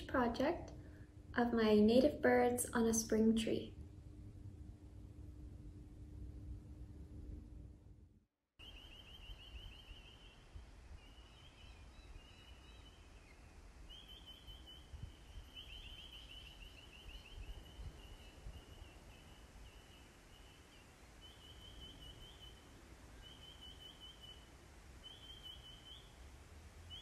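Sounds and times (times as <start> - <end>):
small bird trilling: 11.0 - 24.4.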